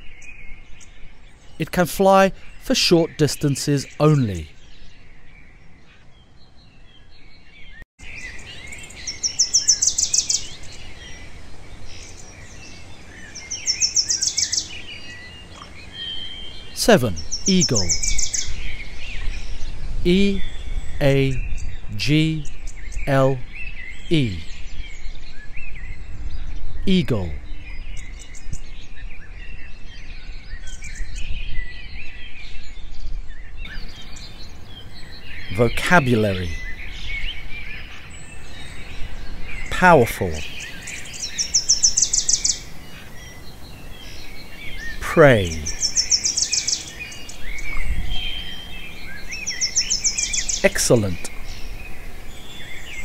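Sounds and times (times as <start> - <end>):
birds chirping: 0.0 - 53.0
low background noise: 8.0 - 28.9, 33.7 - 53.0
steady background hiss: 33.7 - 53.0.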